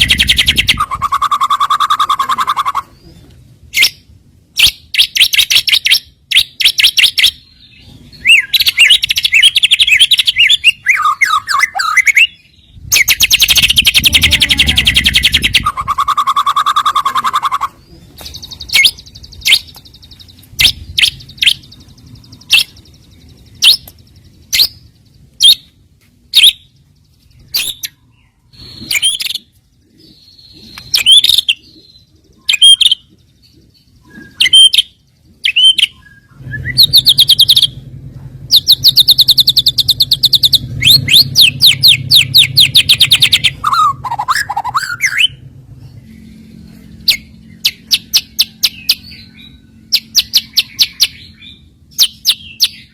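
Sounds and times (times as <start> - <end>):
songbird chips whistles and trills: 3.7 - 25.7, 26.3 - 37.8, 38.5 - 45.4.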